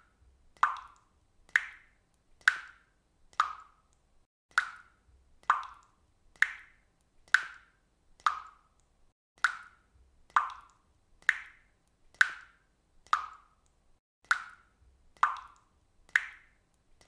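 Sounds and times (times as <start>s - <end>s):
water drops plopping: 0.6s - 7.6s, 9.4s - 16.6s.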